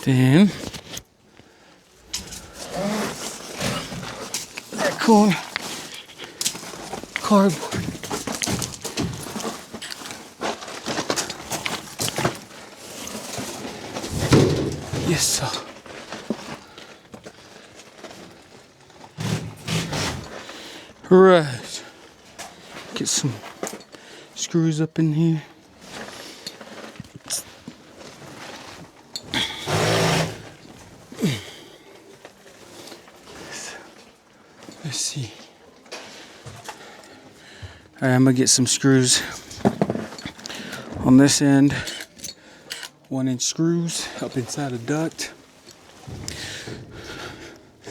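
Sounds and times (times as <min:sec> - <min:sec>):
knocks and clatter on sheet metal: 0:14.1 - 0:15.5.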